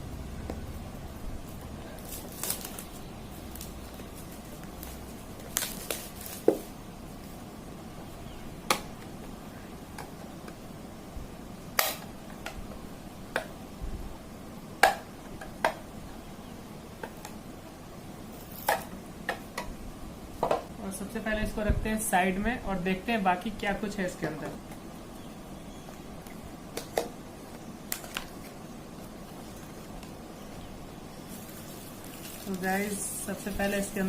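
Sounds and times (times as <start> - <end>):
faint background hiss: 0.0 - 34.0
hands handling plastic packaging: 1.5 - 7.4, 25.8 - 34.0.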